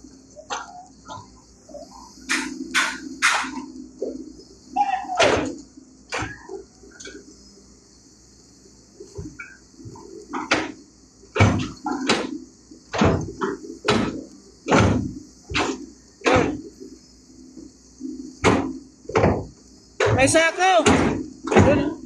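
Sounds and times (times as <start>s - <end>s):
steady high hiss: 0.0s - 22.0s
sharp knocks: 10.3s - 16.6s, 18.4s - 22.0s.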